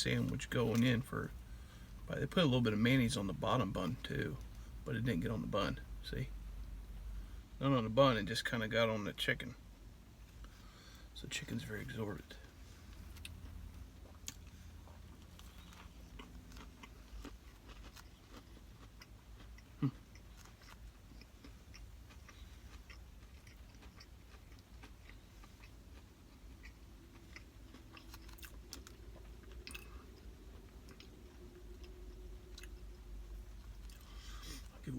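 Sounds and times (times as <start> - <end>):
person chewing crunchy food: 12.9 - 34.8.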